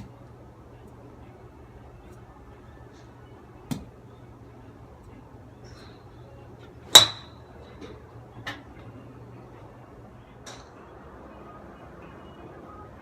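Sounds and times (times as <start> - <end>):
golf club striking ball: 6.9 - 7.4.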